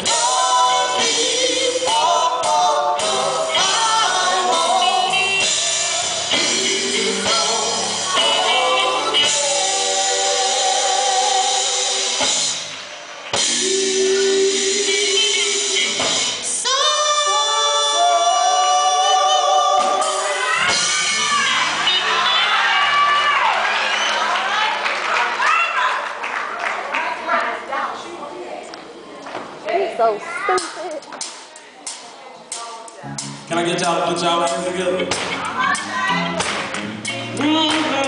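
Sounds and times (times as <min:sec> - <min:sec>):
gospel group singing with band: 0:00.0 - 0:23.4, 0:33.1 - 0:38.0.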